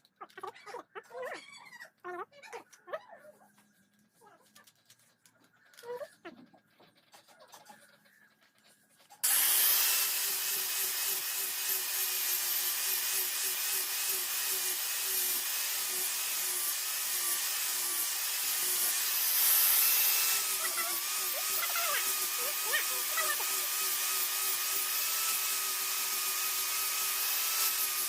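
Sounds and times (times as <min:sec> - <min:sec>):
power grinder on metal: 0:09.2 - 0:28.0.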